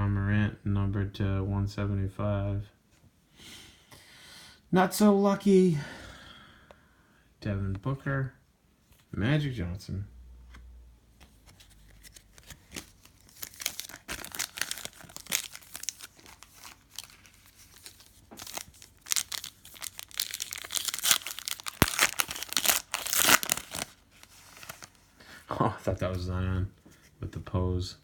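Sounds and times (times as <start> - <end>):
foil wrapper crinkling and tearing: 12.0 - 25.0.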